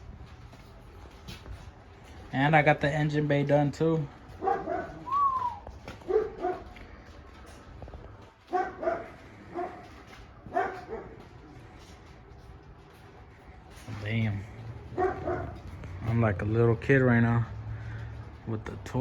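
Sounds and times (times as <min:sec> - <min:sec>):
dog barking: 0:04.3 - 0:06.8, 0:08.5 - 0:11.4, 0:14.8 - 0:16.2
dog whining: 0:04.4 - 0:06.7, 0:14.9 - 0:16.0.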